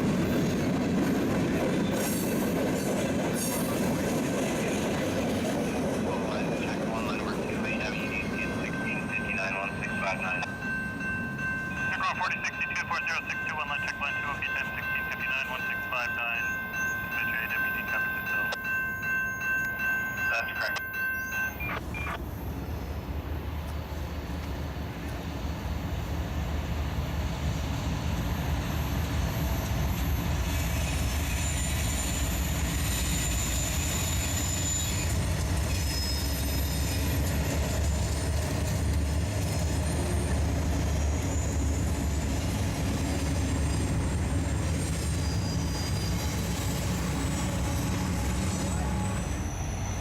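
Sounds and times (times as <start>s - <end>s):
freight train rumbling past: 0.0s - 50.0s
high-pitched wheel squeal: 35.7s - 37.0s, 45.0s - 50.0s.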